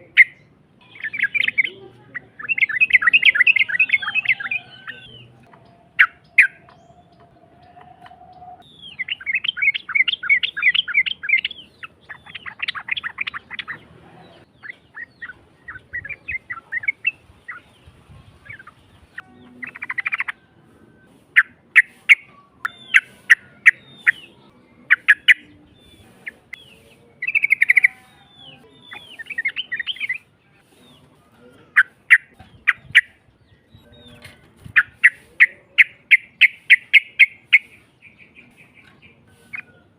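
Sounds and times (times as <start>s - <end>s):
bird calling harshly: 0.0s - 5.2s, 21.2s - 30.3s, 34.8s - 39.9s.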